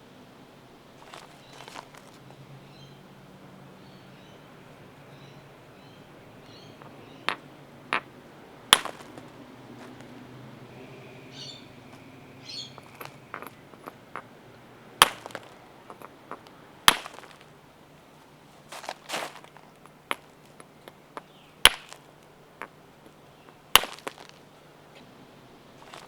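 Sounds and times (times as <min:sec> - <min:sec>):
stone striking stone anvil: 0:06.8 - 0:09.2, 0:12.8 - 0:14.2, 0:15.0 - 0:17.5, 0:19.8 - 0:22.0, 0:23.7 - 0:24.2
small stone pieces clicking: 0:12.8 - 0:14.2, 0:15.0 - 0:17.5.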